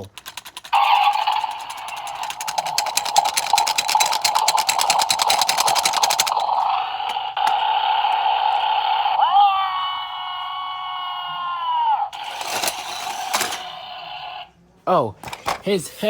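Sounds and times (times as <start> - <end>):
fast clicking rattle: 0.0 - 7.7
toy car electronic engine sound: 0.0 - 10.3, 12.1 - 14.5.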